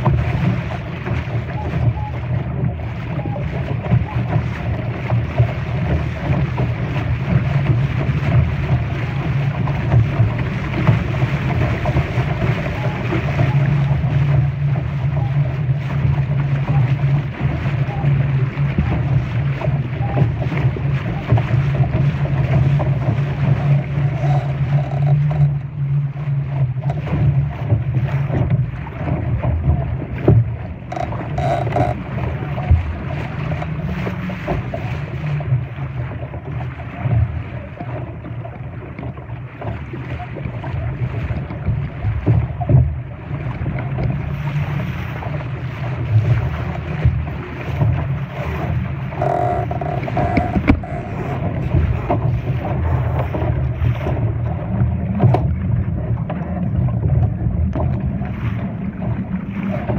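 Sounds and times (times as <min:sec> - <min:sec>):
water rushing against boat: 0:00.0 - 0:59.9
short knocks: 0:49.2 - 0:52.2.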